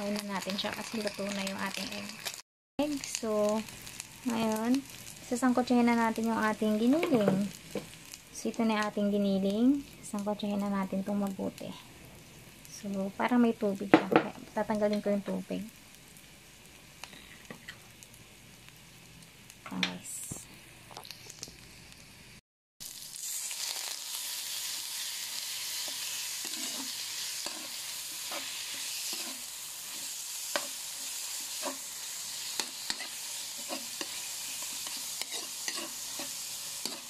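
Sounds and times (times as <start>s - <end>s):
meat sizzling in oil: 0.0s - 19.7s, 20.5s - 37.0s
utensil scraping a wok: 23.1s - 37.0s.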